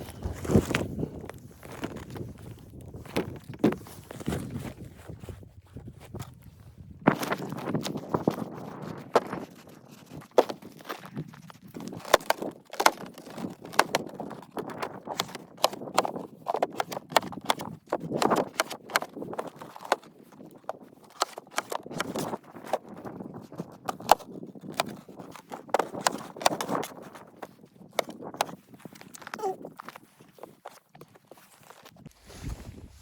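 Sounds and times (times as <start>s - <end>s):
footsteps crunching in snow: 0.0s - 8.2s, 28.2s - 33.0s.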